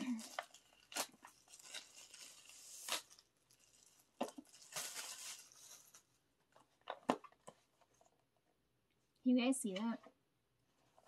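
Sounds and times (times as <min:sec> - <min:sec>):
packaging rustling and tearing: 0:00.0 - 0:06.2.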